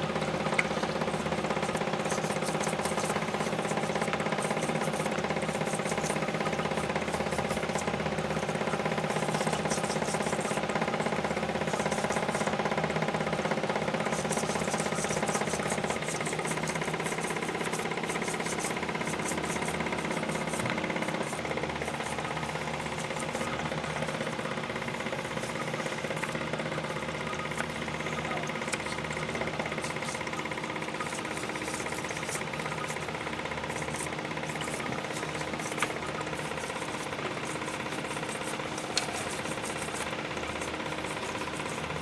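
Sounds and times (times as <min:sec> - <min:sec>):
pump humming with fast rattle: 0:00.0 - 0:42.0.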